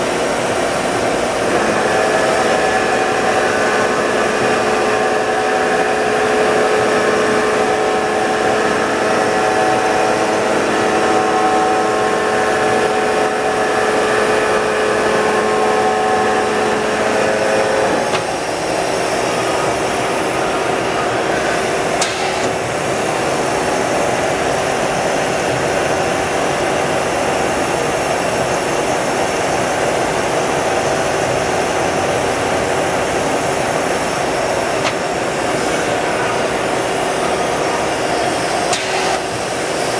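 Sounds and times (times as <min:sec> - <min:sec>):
machine whine over hiss: 0:00.0 - 0:39.9
sharp click: 0:38.7 - 0:39.3.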